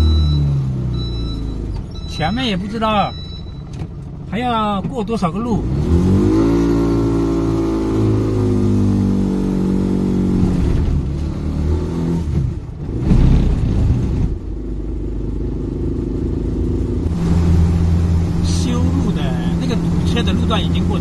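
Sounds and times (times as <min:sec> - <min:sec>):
vehicle engine pulling away: 0:05.6 - 0:21.0.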